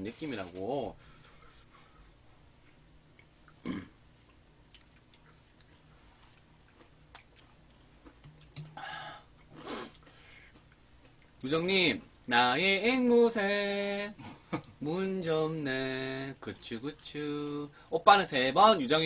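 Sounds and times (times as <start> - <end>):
people chewing fried chicken: 4.2 - 8.6.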